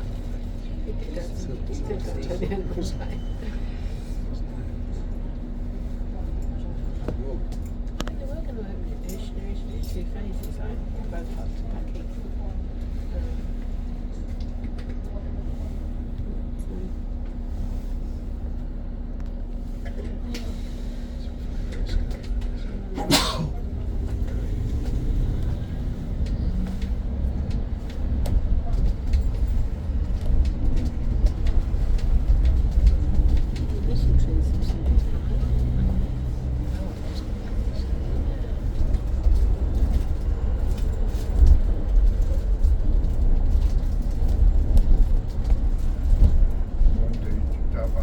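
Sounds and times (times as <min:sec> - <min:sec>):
bus rumbling on board: 0:00.0 - 0:48.0
bodywork rattles and clicks: 0:21.1 - 0:48.0.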